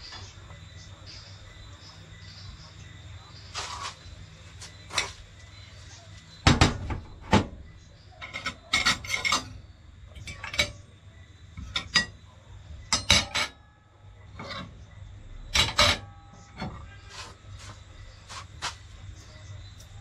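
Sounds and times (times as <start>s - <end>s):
metal utensils clinking on dishes: 8.1s - 11.0s, 11.6s - 13.7s, 14.3s - 16.9s.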